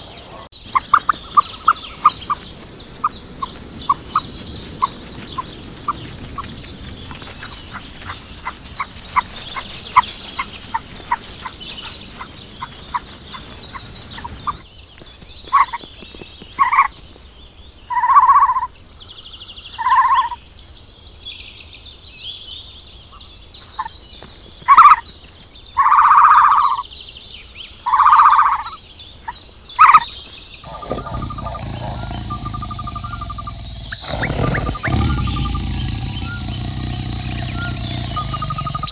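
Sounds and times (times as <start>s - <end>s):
animal chirps: 30.7s - 38.9s
loud animal calls: 30.7s - 38.9s.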